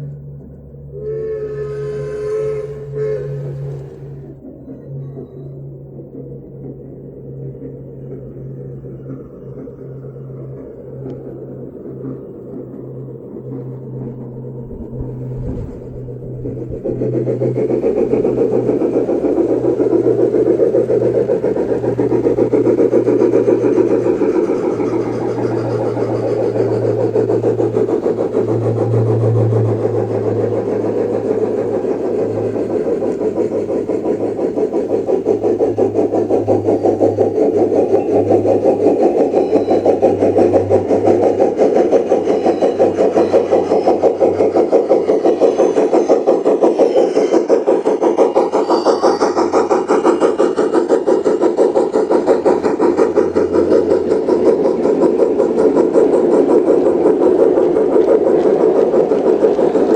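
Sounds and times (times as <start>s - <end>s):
steady low hum: 0.0s - 46.0s
model train running noise: 0.0s - 59.9s.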